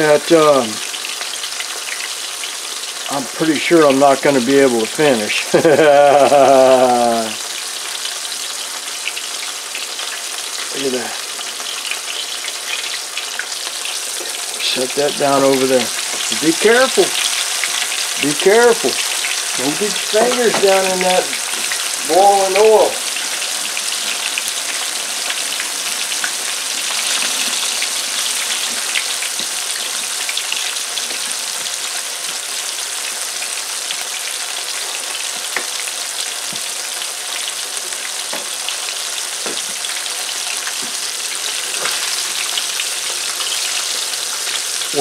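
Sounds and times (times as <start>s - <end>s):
fish frying in hot oil: 0.0s - 45.0s.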